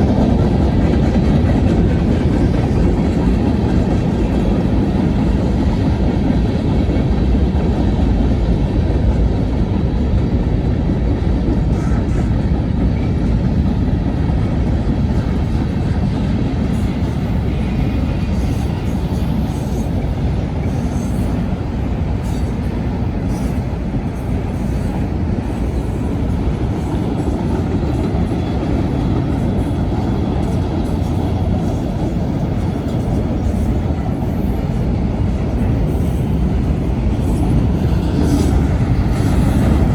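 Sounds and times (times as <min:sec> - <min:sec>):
steel wheels rumbling on rail: 0:00.0 - 0:39.9.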